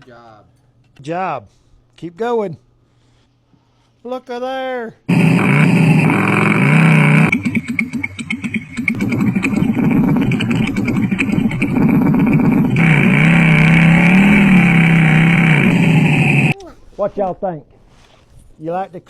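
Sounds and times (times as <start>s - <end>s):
toy motorcycle engine sound: 5.1s - 16.6s.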